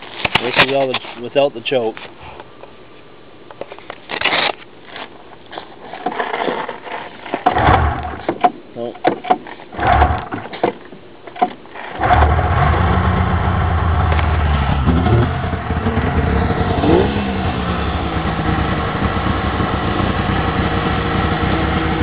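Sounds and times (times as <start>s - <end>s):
snowmobile engine starting and idling: 7.5s - 8.3s, 9.8s - 10.3s, 11.8s - 22.0s.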